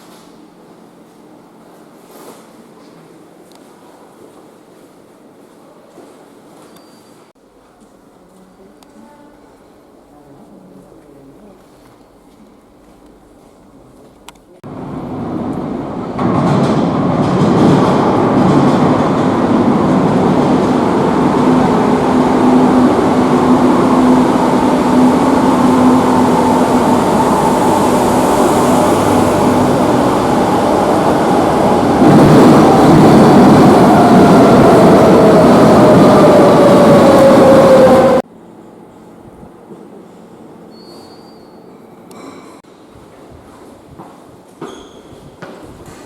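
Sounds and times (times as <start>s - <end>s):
underground train rumble: 14.6s - 38.3s
falling whine: 18.1s - 38.2s.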